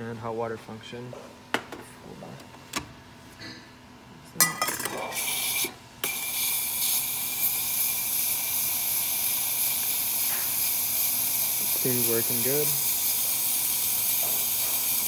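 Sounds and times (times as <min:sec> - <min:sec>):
steam wand hissing: 0:05.2 - 0:15.0.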